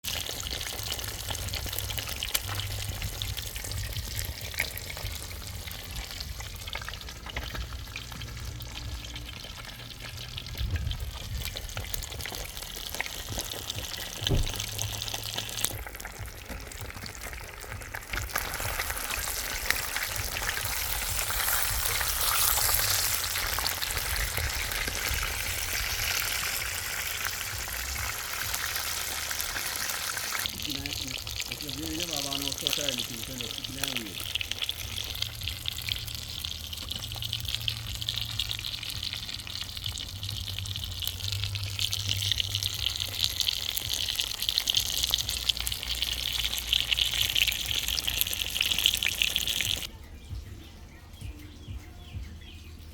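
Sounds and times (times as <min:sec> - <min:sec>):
fish sizzling in hot oil: 0:00.0 - 0:49.9.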